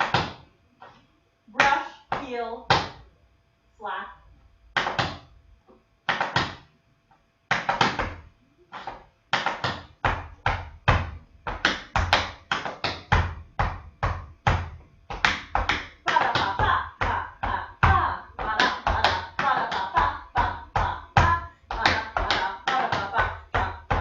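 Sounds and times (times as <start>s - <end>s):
tap shoes on hard floor: 7.5s - 24.0s.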